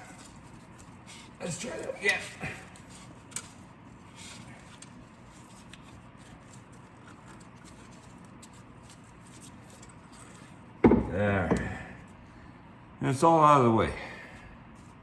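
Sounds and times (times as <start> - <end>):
wire scratching: 0.0 - 10.8.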